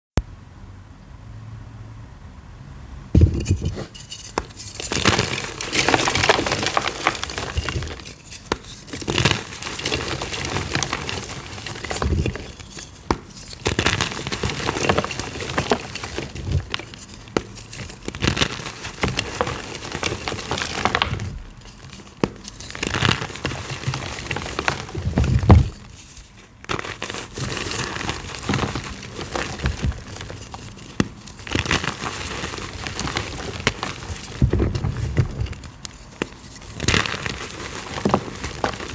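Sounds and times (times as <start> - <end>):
chalk crunching by hand: 3.6 - 38.9.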